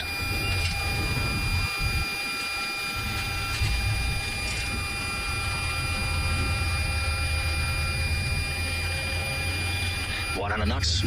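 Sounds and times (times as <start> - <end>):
jet engines whining: 0.0 - 11.0
aircraft rolling rumble: 2.8 - 11.0.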